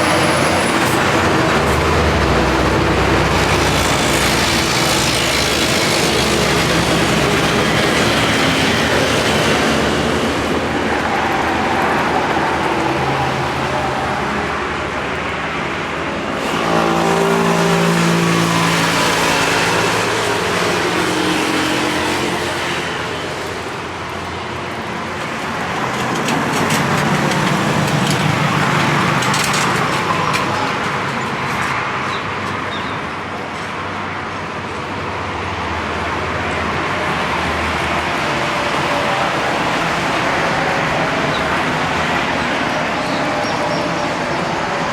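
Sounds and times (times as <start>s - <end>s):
rough engine passing loudly: 0.0s - 32.4s
cars and trucks passing: 0.0s - 44.9s
roadway hum: 0.0s - 44.9s.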